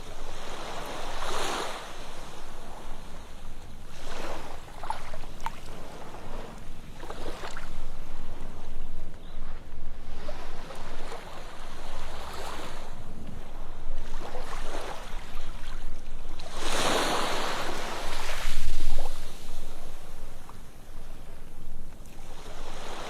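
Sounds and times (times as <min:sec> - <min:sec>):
ocean surf on beach: 0:00.0 - 0:23.0.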